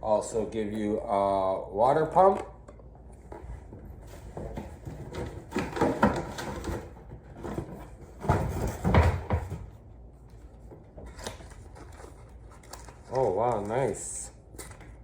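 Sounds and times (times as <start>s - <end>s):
knocks of items from a box: 4.1s - 9.8s.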